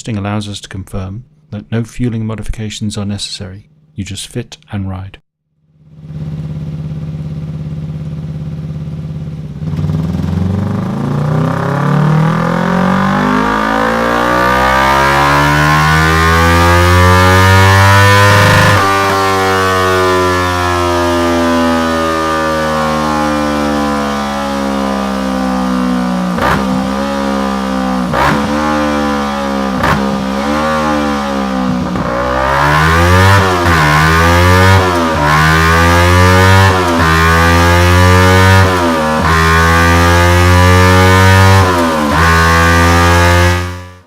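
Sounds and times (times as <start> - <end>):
motorcycle engine revving: 5.6 - 44.0
exhaust cracks: 5.8 - 43.9.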